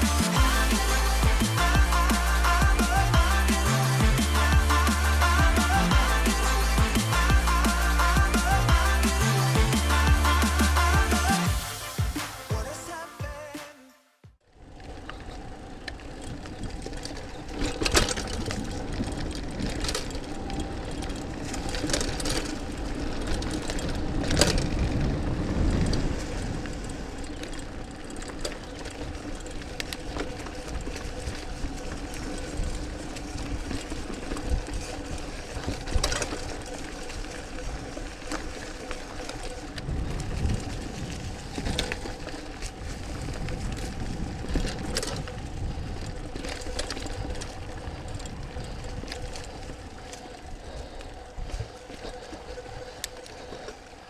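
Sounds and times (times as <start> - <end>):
steady hum: 0.0 - 13.2
bike drivetrain rattle: 14.5 - 54.0
bike tyre rumble on dirt: 14.5 - 54.0.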